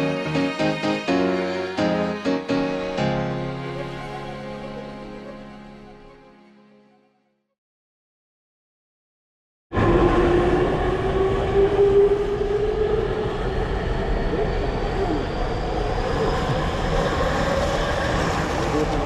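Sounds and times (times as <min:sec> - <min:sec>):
electric train rumbling: 0:09.8 - 0:19.0.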